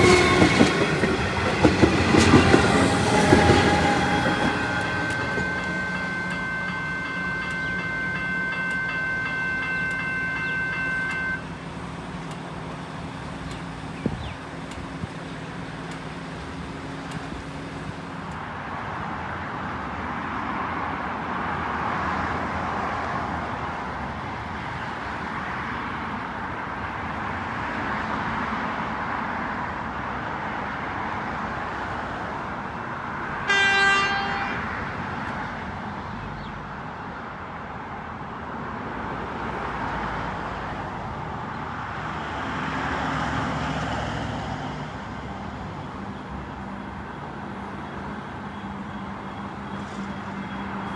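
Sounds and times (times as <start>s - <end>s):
train horn toot: 0.0s - 11.6s, 33.4s - 35.0s, 47.6s - 50.9s
electric train rumbling: 0.0s - 50.9s.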